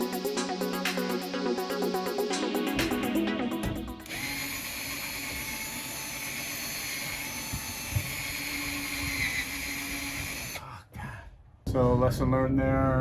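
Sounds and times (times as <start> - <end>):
electronic music: 0.0 - 6.4
cordless drill on steel: 4.0 - 10.6.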